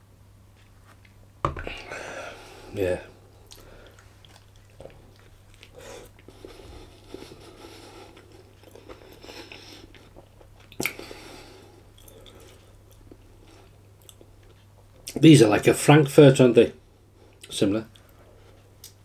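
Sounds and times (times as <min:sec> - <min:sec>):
person chewing food: 0:03.2 - 0:15.2
wet mouth sounds: 0:03.4 - 0:11.2.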